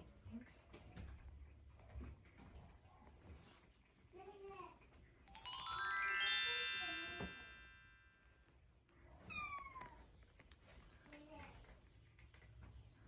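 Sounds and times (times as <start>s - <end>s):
chime-like musical flourish: 5.3s - 8.2s.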